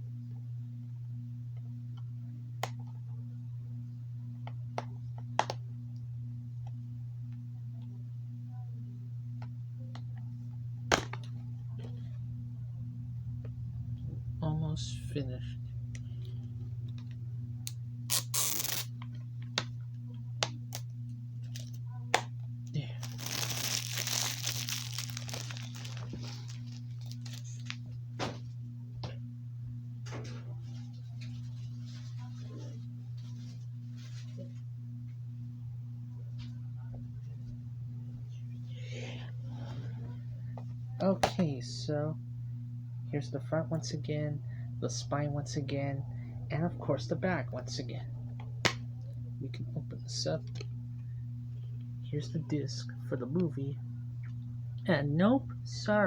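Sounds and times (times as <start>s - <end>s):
low hum: 0.0s - 56.0s
plastic wrap crinkling: 18.1s - 18.9s, 22.9s - 27.8s
tape peeling off plastic case: 18.1s - 18.9s, 23.0s - 27.8s.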